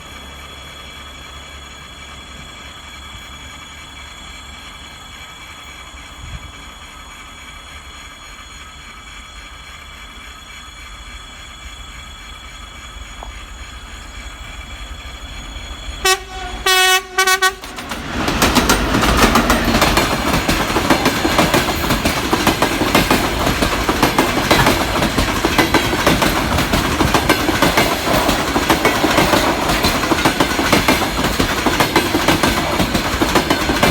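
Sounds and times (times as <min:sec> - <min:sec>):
diesel locomotive rumbling: 0:00.0 - 0:33.9
train wheels clickety-clack: 0:00.0 - 0:33.9
locomotive horn blasts: 0:16.0 - 0:17.8.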